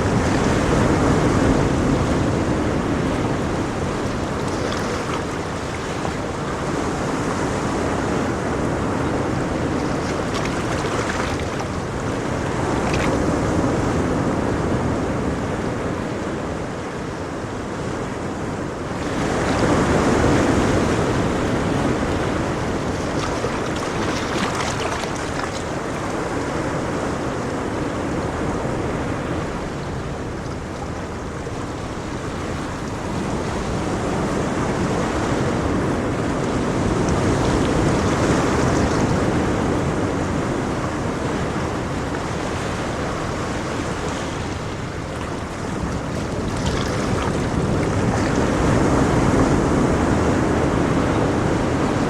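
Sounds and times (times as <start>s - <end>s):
ocean waves breaking on shore: 0.0s - 52.0s.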